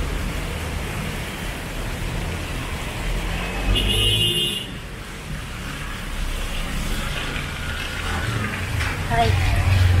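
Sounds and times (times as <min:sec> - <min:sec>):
passing traffic: 0:00.0 - 0:10.0
steady rain on a street: 0:00.0 - 0:10.0
vehicle horn toot: 0:03.8 - 0:04.7.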